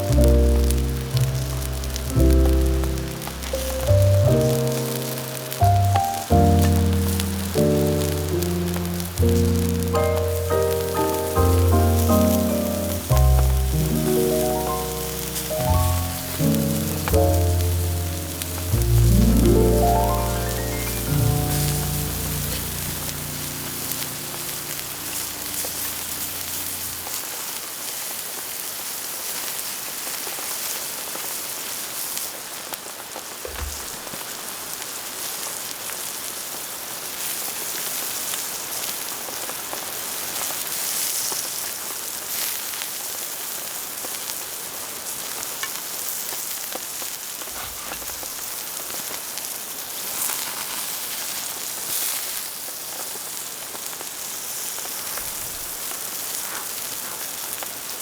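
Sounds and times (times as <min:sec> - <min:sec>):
water drips: 0:00.0 - 0:27.2
rain falling in forest: 0:00.0 - 0:58.0.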